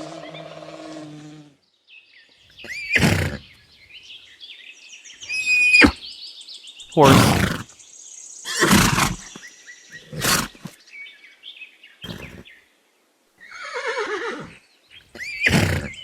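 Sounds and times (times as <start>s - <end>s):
horse whinnying: 2.7s - 3.4s, 5.3s - 6.0s, 7.0s - 7.6s, 8.5s - 9.3s, 10.0s - 10.6s, 12.1s - 12.4s, 13.5s - 16.0s.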